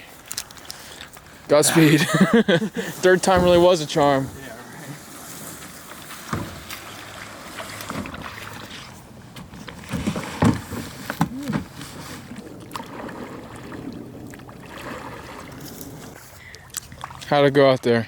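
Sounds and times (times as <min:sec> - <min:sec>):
oar splashing in water: 0:02.1 - 0:17.5
wood knocking against hull: 0:03.2 - 0:04.2, 0:06.3 - 0:06.9.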